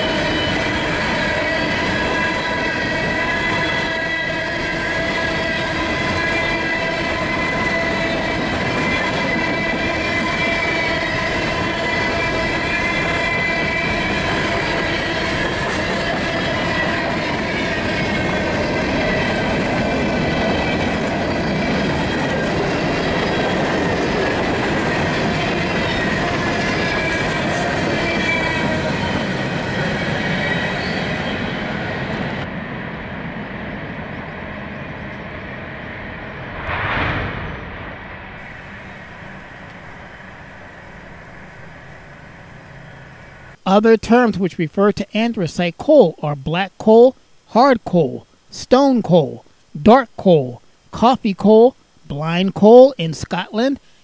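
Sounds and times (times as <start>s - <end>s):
high wheel squeals: 0.0s - 19.6s, 20.4s - 32.1s.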